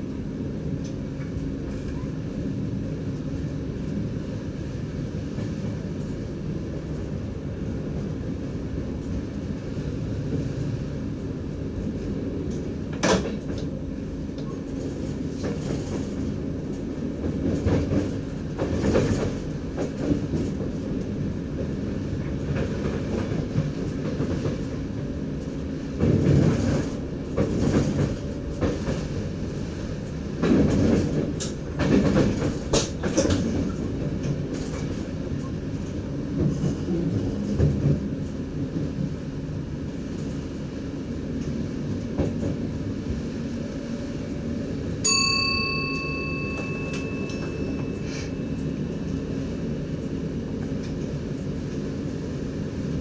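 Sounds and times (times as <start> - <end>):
electric train rumbling: 0.0 - 53.0
train clattering: 12.4 - 39.1, 45.2 - 51.9.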